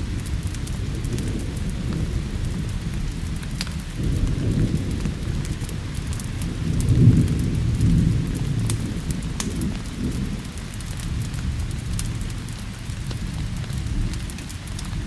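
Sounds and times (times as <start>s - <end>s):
steady rain: 0.0s - 15.0s
thunder rumbling: 0.0s - 15.0s
sharp crackling ticks: 8.6s - 15.0s.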